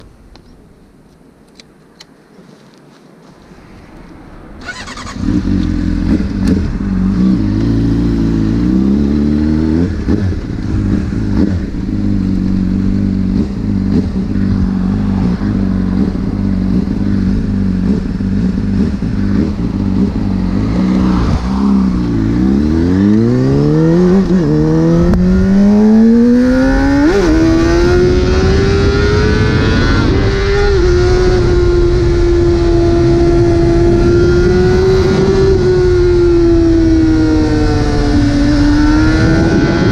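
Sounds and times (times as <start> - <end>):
gear upshifts: 4.6 - 8.4
motorcycle revving and pulling away: 4.6 - 39.9.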